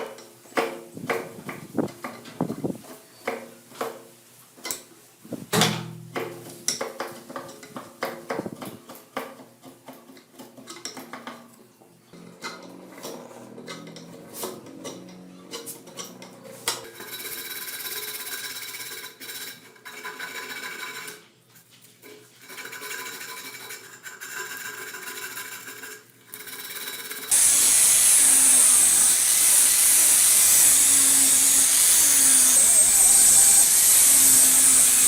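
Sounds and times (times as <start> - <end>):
small power tool whirring: 26.6 - 35.0
loud power tool hissing: 27.3 - 35.0.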